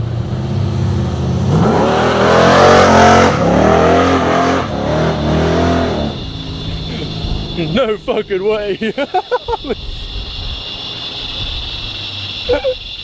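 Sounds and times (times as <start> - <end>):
engine idling and revving: 0.0 - 12.5.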